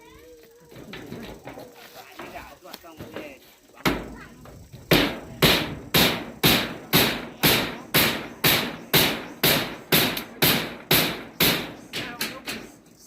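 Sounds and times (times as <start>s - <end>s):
hammer blows: 4.9s - 12.8s.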